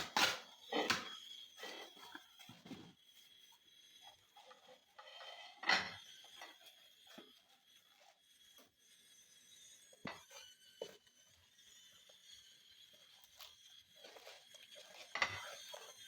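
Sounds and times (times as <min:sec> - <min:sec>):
objects being handled: 0:00.0 - 0:03.0.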